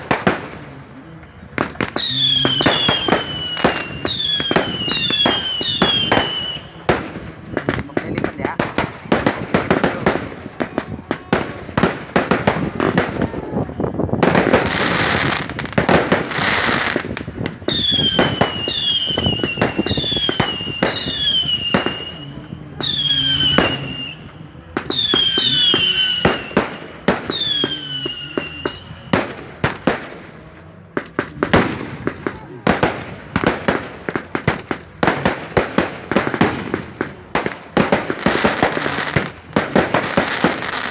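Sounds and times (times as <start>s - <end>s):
fireworks banging and crackling: 0.0s - 40.9s
whistling fireworks: 0.0s - 40.9s.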